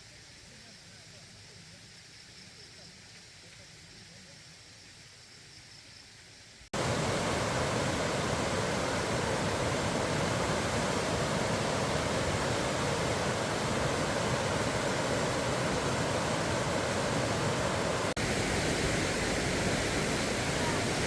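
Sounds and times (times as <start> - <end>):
faint low hiss: 0.0 - 21.0
heavy rain: 6.8 - 21.0.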